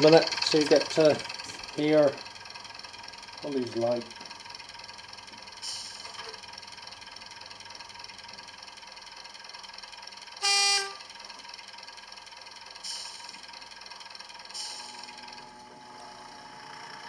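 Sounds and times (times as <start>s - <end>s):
quiet model running sound: 0.0s - 17.0s
model train horn toot: 10.4s - 11.2s
short hiss: 12.8s - 13.5s, 14.5s - 15.2s.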